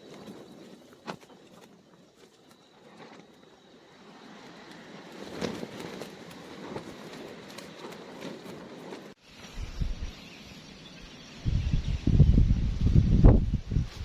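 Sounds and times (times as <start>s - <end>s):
faint crackling rustle: 0.0s - 9.6s
wind blasting microphone: 4.8s - 10.2s, 11.4s - 14.0s.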